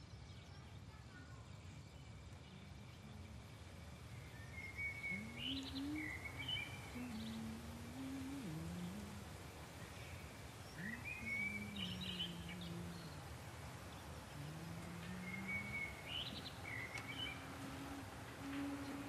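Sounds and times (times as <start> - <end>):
outdoor hiss: 0.0 - 19.0
small birds chirping: 0.0 - 19.0
faint low sliding tone: 14.3 - 19.0.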